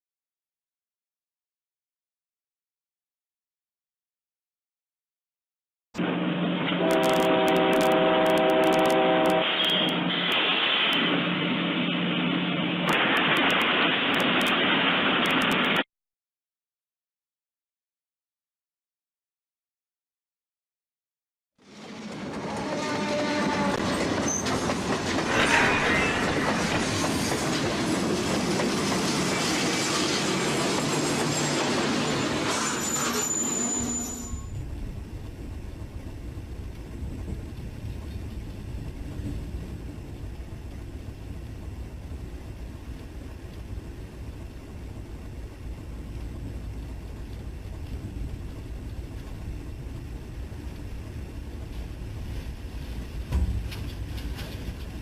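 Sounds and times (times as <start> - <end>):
train passing on rails: 6.0 - 15.8, 21.6 - 55.0
wheel squeal: 22.4 - 27.5, 29.3 - 34.6.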